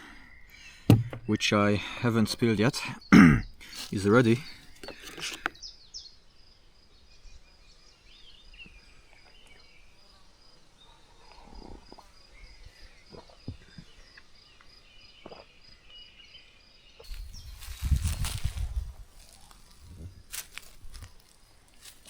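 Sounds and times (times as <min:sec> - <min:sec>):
bird chirps: 0:02.6 - 0:11.4, 0:12.2 - 0:20.1
insect chirping: 0:02.8 - 0:22.0.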